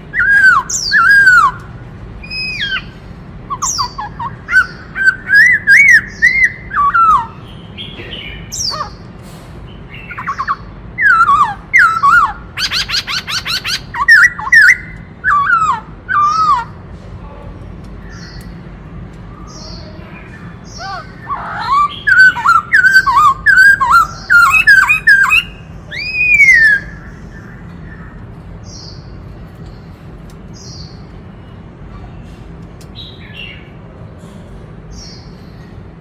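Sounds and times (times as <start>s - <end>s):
bird whistling looping notes: 0.1s - 1.6s, 2.2s - 7.4s, 10.1s - 16.8s, 20.8s - 27.1s.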